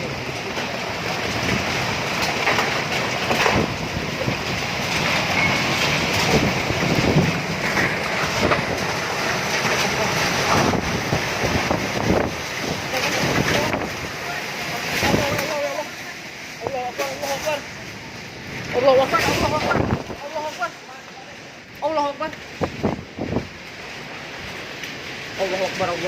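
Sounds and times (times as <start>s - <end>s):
gusting wind: 0.0s - 26.0s
heavy rain: 0.0s - 26.0s.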